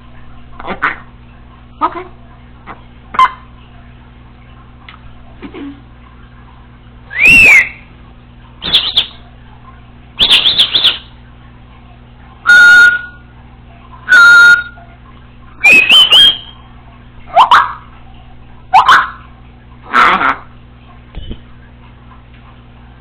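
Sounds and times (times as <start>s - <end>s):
parrot whistles and squawks: 7.1s - 7.9s, 8.6s - 9.2s, 10.2s - 11.2s, 12.4s - 13.2s, 14.0s - 14.8s, 15.6s - 16.7s, 17.3s - 17.8s, 18.7s - 19.2s.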